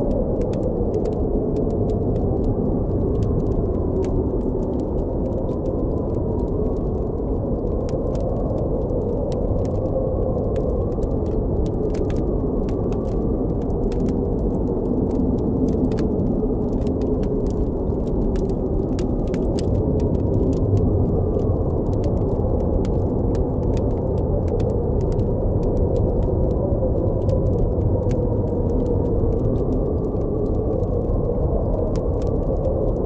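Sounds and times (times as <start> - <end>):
blizzard wind blowing: 0.0 - 33.0
campfire crackling and popping: 0.0 - 33.0.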